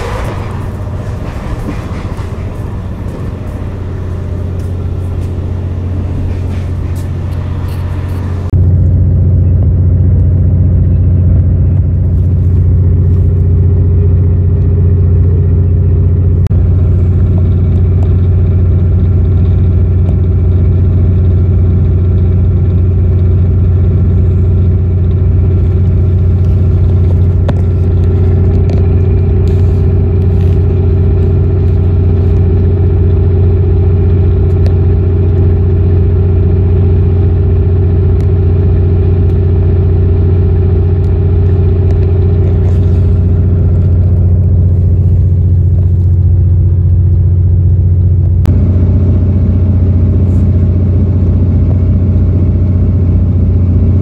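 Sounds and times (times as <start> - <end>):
train running drone: 0.0 - 54.0.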